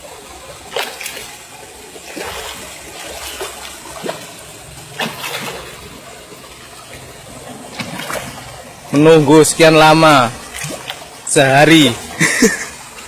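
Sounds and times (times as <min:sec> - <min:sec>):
fish splashing at the surface: 0:00.4 - 0:08.8, 0:10.4 - 0:11.2.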